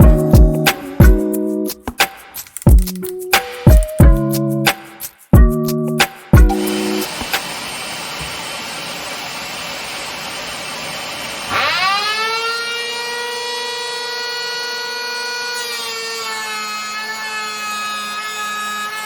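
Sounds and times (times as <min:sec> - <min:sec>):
electric planer whining: 0:06.6 - 0:19.0.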